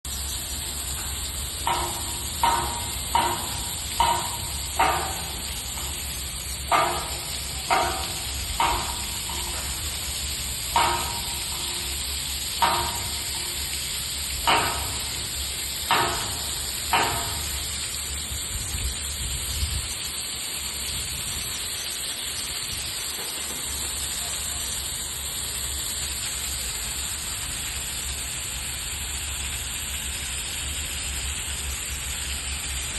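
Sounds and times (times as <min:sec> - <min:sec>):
water falling with hiss: 0:00.0 - 0:32.9
sharp ringing knocks: 0:00.8 - 0:17.9.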